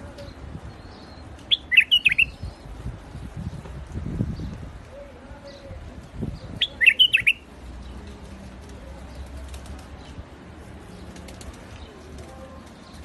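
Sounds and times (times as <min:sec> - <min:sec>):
bird singing whistled notes: 0:00.7 - 0:02.6, 0:06.6 - 0:07.4.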